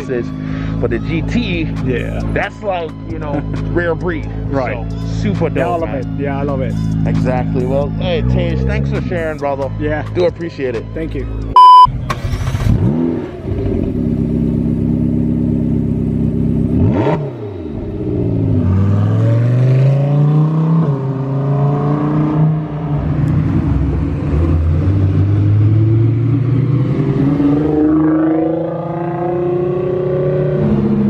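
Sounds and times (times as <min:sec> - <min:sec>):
car engines revving: 0:12.2 - 0:31.0.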